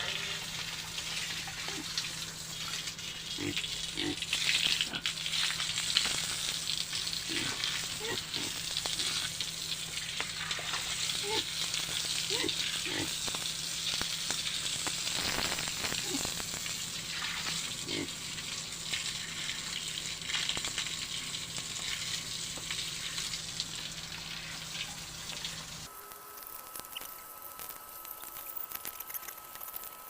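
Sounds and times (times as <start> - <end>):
crackling hiss: 0.0 - 30.0
light scattered ticks: 26.1 - 30.0.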